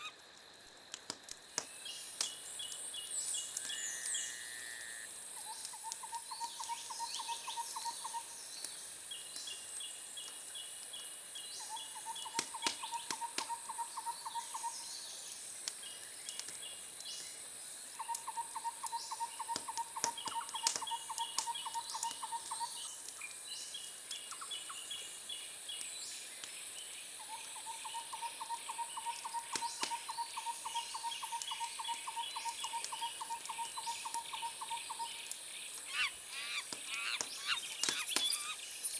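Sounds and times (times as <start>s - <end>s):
high insect drone: 0.0s - 38.9s
sharp crackling clicks: 0.3s - 4.2s, 12.2s - 13.6s, 15.2s - 17.4s, 18.8s - 23.3s, 29.5s - 30.0s, 36.6s - 38.6s.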